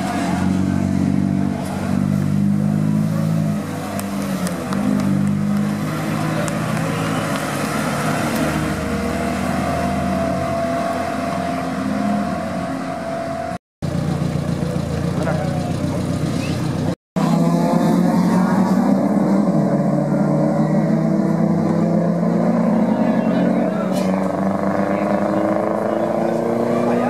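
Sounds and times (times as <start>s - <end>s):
race cars passing by: 0.0s - 27.0s.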